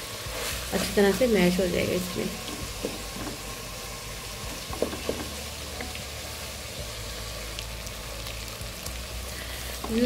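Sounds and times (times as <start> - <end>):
food sizzling in a pot: 0.0 - 10.0
wooden spatula knocks: 2.5 - 3.4, 4.5 - 5.3.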